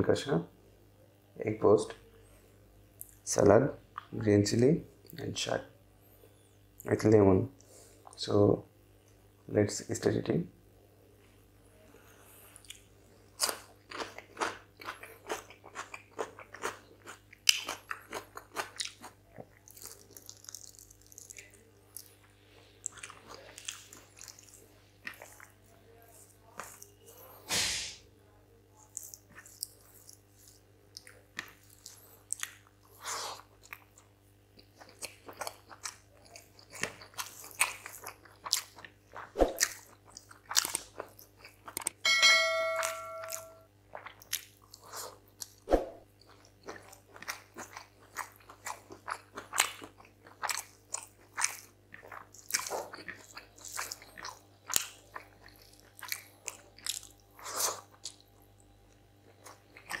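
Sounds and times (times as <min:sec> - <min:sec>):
wet chewing and mouth smacks: 0:12.6 - 0:27.0, 0:28.8 - 0:42.0, 0:43.9 - 1:00.0
bright electronic chime: 0:42.1 - 0:43.7.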